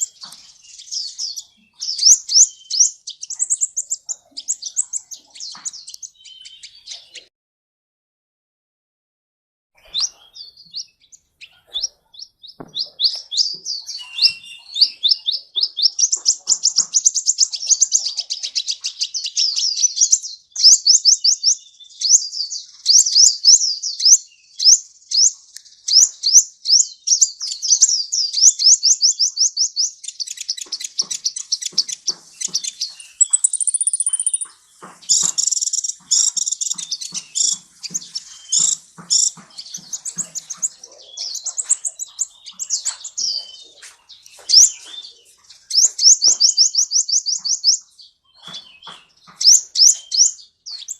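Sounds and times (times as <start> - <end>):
sunbird high sweeping chirps: 0.0 - 7.3, 12.7 - 21.5, 27.2 - 50.9
steady high bird whistle: 33.1 - 34.4.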